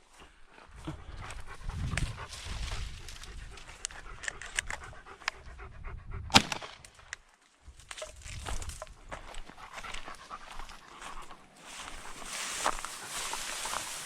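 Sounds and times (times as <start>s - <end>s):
dog panting hard: 0.2s - 6.3s, 9.3s - 14.0s
sharp clicks: 3.8s - 5.4s.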